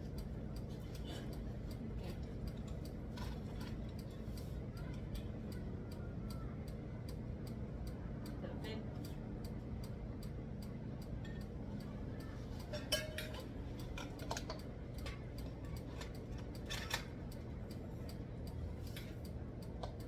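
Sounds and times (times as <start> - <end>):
steady ticking: 12.9 - 20.0.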